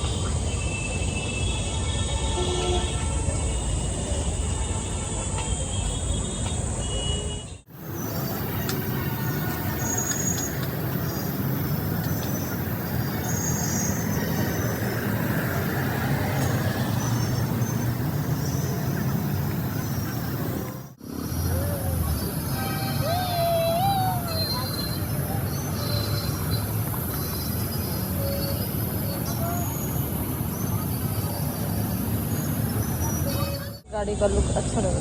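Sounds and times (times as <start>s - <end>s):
traffic noise: 0.0s - 35.0s
vehicle rumble: 7.6s - 35.0s.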